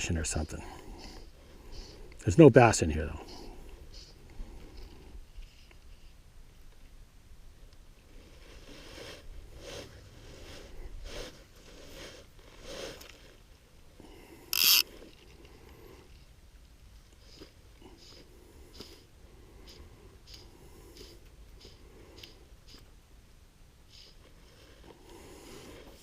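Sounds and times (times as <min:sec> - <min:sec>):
soft rustling scrapes: 0:08.0 - 0:13.8.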